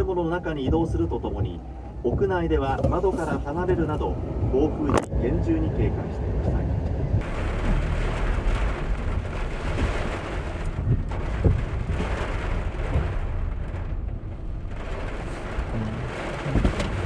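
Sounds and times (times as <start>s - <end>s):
wind buffeting microphone: 0.0s - 7.3s, 9.7s - 17.0s.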